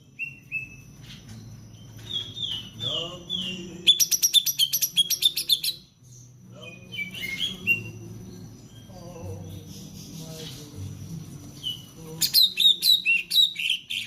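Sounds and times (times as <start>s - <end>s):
bird singing sharp chirps: 11.6s - 14.0s.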